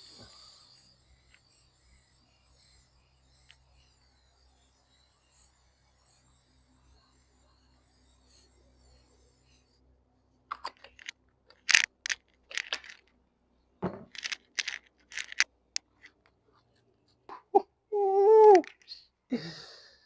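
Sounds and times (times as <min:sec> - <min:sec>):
sharp handling clicks: 0:10.5 - 0:13.1, 0:14.1 - 0:16.2
crinkling rustles: 0:10.8 - 0:13.1, 0:14.1 - 0:15.5.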